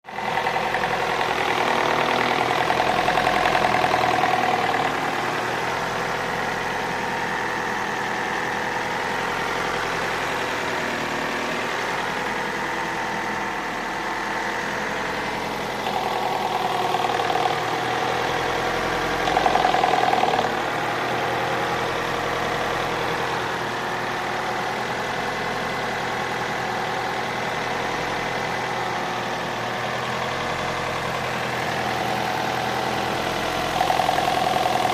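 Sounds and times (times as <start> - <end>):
car engine idling with a knock: 0.1 - 5.0, 15.5 - 17.7, 19.0 - 20.8.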